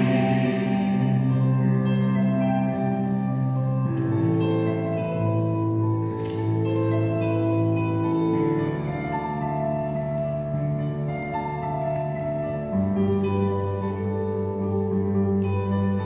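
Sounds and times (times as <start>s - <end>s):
choir singing: 0.0s - 2.1s
piano accompaniment: 0.0s - 16.0s.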